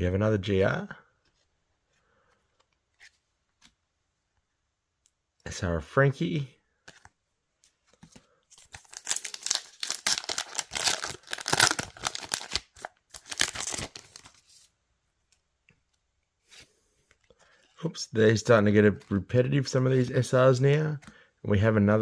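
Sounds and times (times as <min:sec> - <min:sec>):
wrapper tearing and crinkling: 0:08.6 - 0:14.4.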